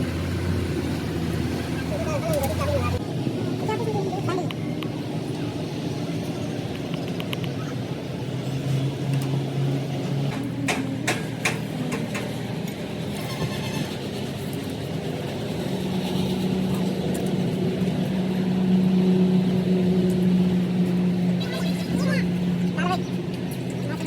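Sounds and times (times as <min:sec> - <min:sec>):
engine running: 0:00.0 - 0:24.0
sharp metallic knocks: 0:10.3 - 0:12.4.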